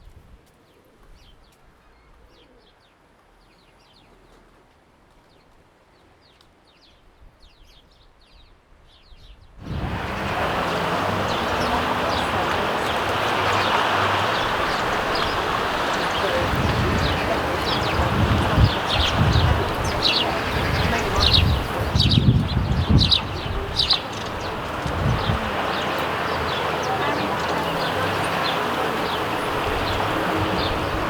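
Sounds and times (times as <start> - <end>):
loud steady rushing noise: 9.6 - 31.0
sparrows chirping: 9.6 - 31.0.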